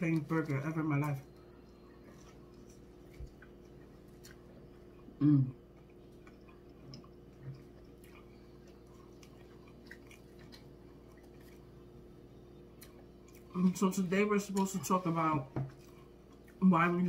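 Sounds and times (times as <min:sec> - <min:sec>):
people chewing food: 0:00.0 - 0:17.0
person humming: 0:05.2 - 0:05.6.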